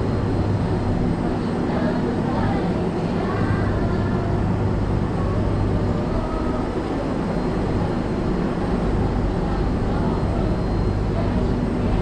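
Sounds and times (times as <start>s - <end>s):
passenger train rumbling: 0.0s - 12.0s.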